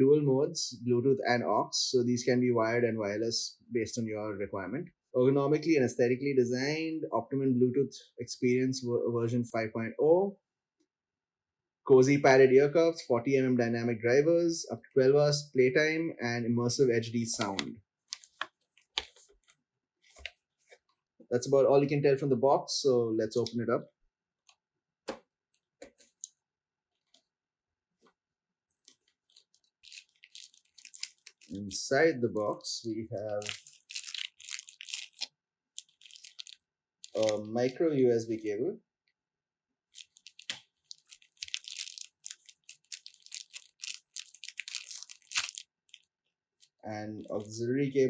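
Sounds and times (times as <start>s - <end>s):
packaging rustling: 17.3s - 20.8s, 28.7s - 31.7s, 33.2s - 37.5s, 39.9s - 47.5s.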